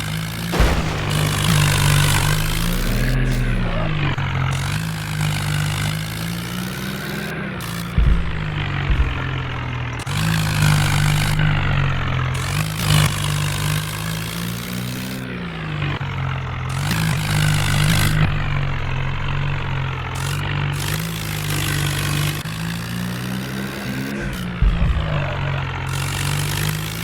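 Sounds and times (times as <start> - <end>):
tractor engine revving: 0.2 - 27.0
low thumps: 0.5 - 4.9, 8.0 - 10.0, 24.2 - 25.8.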